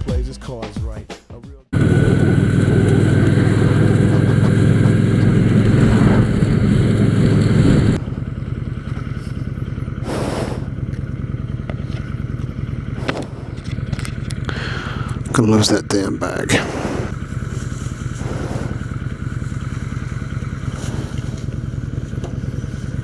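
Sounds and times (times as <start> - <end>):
motorcycle engine running: 1.7 - 23.0.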